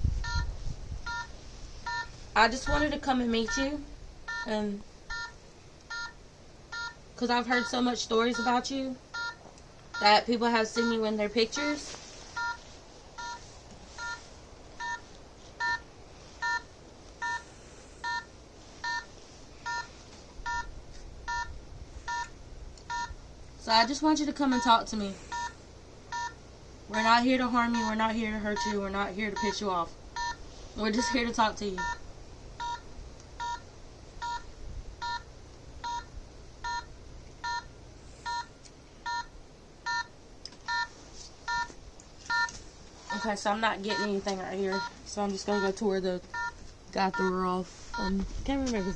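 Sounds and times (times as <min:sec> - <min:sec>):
electronic multi-tone beeps: 0:00.2 - 0:00.5, 0:01.1 - 0:01.3, 0:01.9 - 0:02.1, 0:03.4 - 0:03.7, 0:04.3 - 0:04.5, 0:05.1 - 0:07.0, 0:07.6 - 0:08.6, 0:09.2 - 0:09.4, 0:12.4 - 0:12.6, 0:13.2 - 0:13.4, 0:14.8 - 0:15.0, 0:15.6 - 0:15.8, 0:16.4 - 0:17.4, 0:18.0 - 0:19.9, 0:20.5 - 0:20.7, 0:22.1 - 0:22.3, 0:22.9 - 0:23.2, 0:25.3 - 0:26.4, 0:27.8 - 0:29.6, 0:30.2 - 0:30.4, 0:31.0 - 0:31.2, 0:31.8 - 0:32.0, 0:32.6 - 0:32.8, 0:33.4 - 0:33.6, 0:34.2 - 0:34.4, 0:35.0 - 0:35.2, 0:35.8 - 0:38.5, 0:39.9 - 0:40.1, 0:42.3 - 0:42.5, 0:43.1 - 0:47.4, 0:48.0 - 0:48.2
short electronic beeps: 0:01.1 - 0:01.3, 0:01.9 - 0:02.1, 0:13.2 - 0:13.4, 0:18.0 - 0:19.1, 0:25.3 - 0:26.4, 0:31.8 - 0:32.0, 0:32.6 - 0:32.8, 0:35.8 - 0:38.5, 0:42.3 - 0:42.5.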